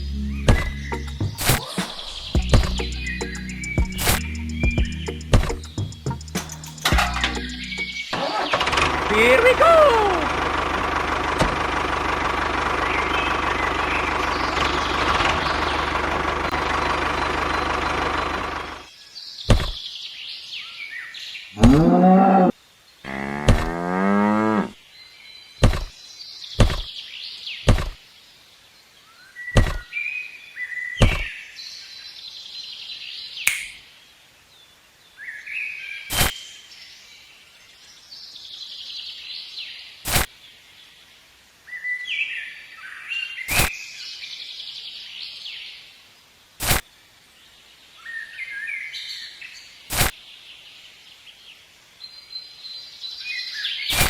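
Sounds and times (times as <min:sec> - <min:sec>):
birds chirping: 0:00.0 - 0:41.2
small engine running: 0:08.2 - 0:18.9
sharp knocks: 0:19.5 - 0:19.8, 0:21.6 - 0:21.8, 0:23.5 - 0:23.7, 0:25.6 - 0:25.9, 0:26.6 - 0:26.9, 0:27.7 - 0:28.0, 0:29.6 - 0:29.8, 0:31.0 - 0:31.3
cow mooing: 0:21.6 - 0:22.5, 0:23.1 - 0:24.8.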